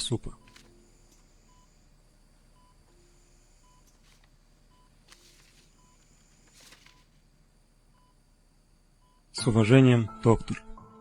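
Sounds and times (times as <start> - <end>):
patient monitor beeps: 0.0 - 11.0.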